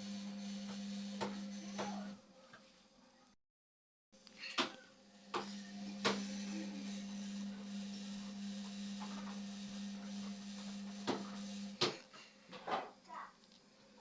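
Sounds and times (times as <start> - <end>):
washing machine electrical hum: 0.0 - 2.3, 4.6 - 13.0.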